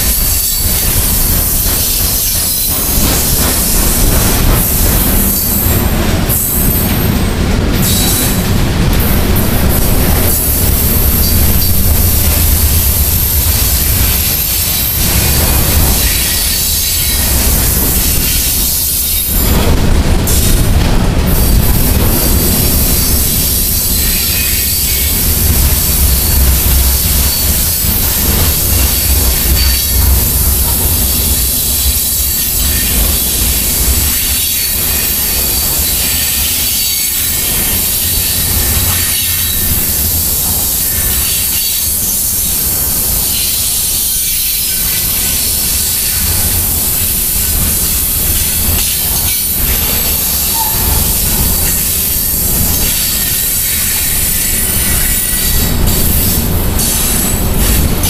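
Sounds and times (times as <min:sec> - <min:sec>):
rumble of train wheels on rail: 0:00.0 - 0:58.0
faint high wheel squeal: 0:26.3 - 0:55.7.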